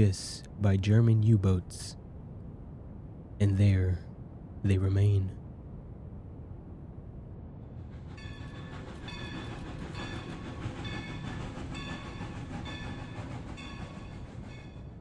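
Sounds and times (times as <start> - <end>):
train rumbling on rails: 0.0 - 6.4, 7.4 - 15.0
rhythmic rail clatter: 7.7 - 15.0.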